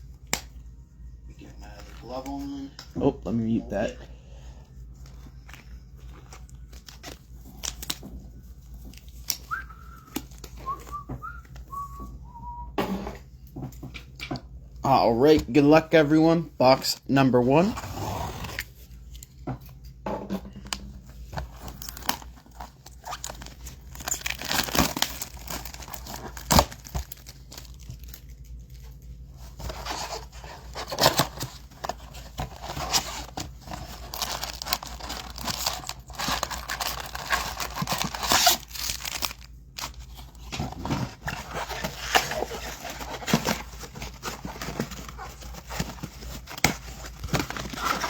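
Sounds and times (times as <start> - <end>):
cardboard and foil tearing: 21.5 - 48.0.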